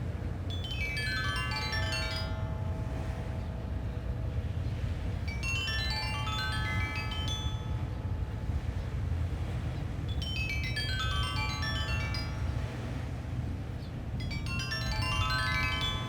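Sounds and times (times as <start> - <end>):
low rumble of wind: 0.0 - 16.0
stone xylophone ringing notes: 0.5 - 8.6, 10.2 - 12.6, 14.2 - 16.0.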